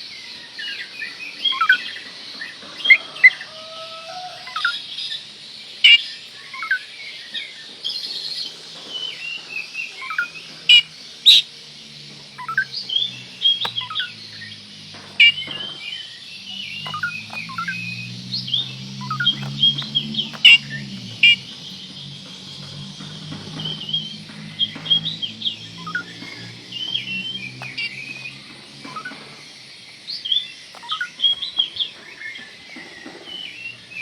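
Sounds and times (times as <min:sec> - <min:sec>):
bird song with whistles and trills: 0:00.0 - 0:34.0
loud sharp bird calls: 0:00.0 - 0:34.0.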